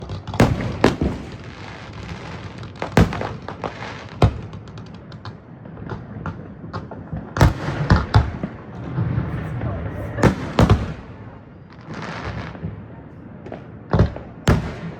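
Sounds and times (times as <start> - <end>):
crackling firework pops: 0.0 - 8.3, 10.2 - 11.0
fireworks bangs: 0.0 - 14.9.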